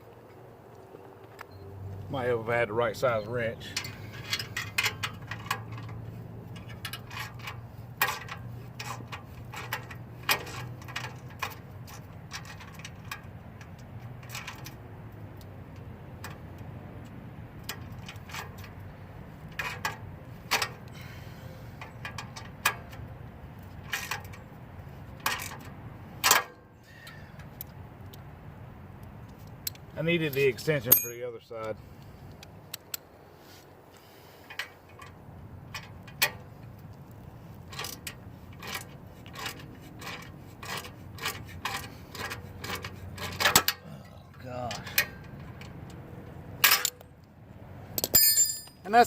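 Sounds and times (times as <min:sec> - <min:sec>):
wrench clicking on metal bolts: 0:03.8 - 0:14.8, 0:19.5 - 0:20.8, 0:37.7 - 0:43.8, 0:46.6 - 0:47.0, 0:48.0 - 0:48.8.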